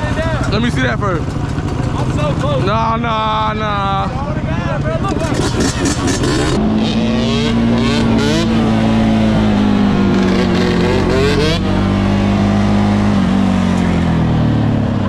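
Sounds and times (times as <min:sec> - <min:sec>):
dirt bike engine revving: 0:05.0 - 0:15.0.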